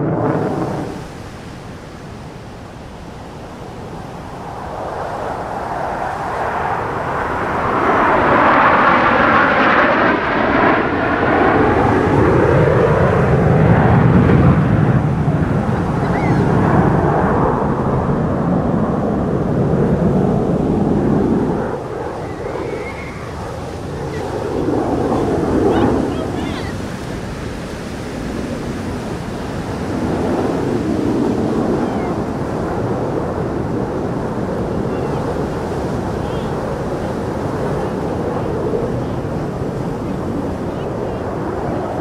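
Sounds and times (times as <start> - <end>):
fighter jet flying past: 0.0 - 42.0.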